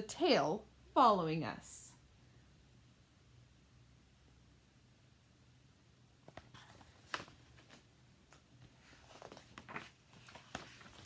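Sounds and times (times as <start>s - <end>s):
faint low room hum: 0.0s - 11.0s
book page turning: 6.3s - 11.0s
paper rustling: 6.3s - 11.0s.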